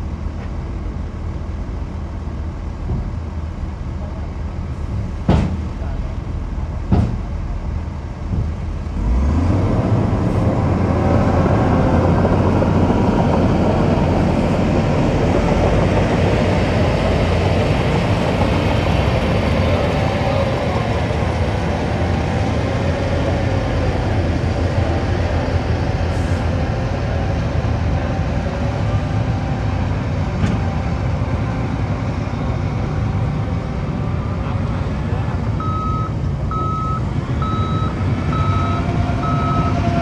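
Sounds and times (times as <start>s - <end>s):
heavy diesel engine revving: 8.8s - 40.0s.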